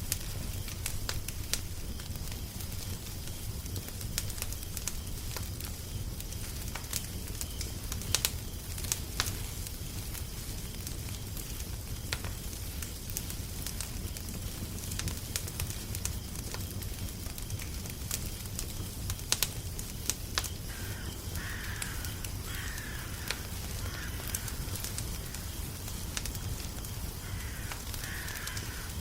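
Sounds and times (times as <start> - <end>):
wood fire crackling: 0.0 - 29.0
faint crow cawing: 20.7 - 29.0.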